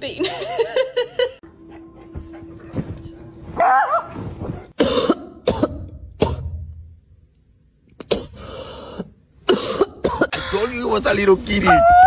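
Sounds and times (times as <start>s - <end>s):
person coughing: 4.8s - 6.6s, 8.0s - 8.5s, 9.4s - 10.6s.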